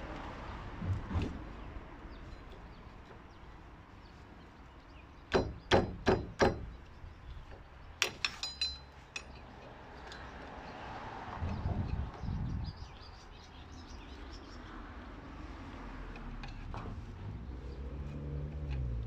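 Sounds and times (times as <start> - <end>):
ringing metal clink: 8.1 - 10.2.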